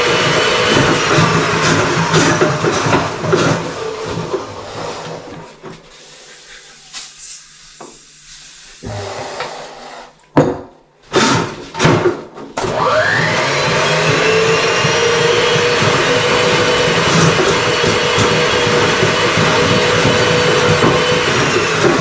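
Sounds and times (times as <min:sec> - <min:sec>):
electric motor whining: 0:07.8 - 0:10.1.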